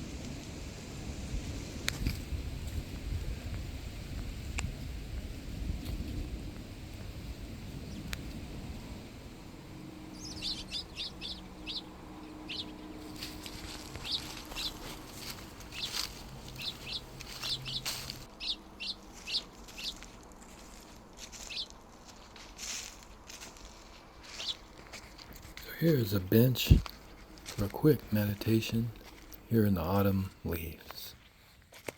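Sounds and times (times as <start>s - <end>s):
low steady hum: 0.0s - 31.9s
songbird chirping: 7.7s - 31.3s.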